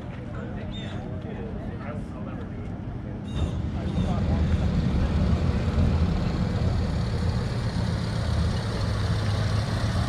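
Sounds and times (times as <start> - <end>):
vehicle engine idling: 3.5 - 10.0.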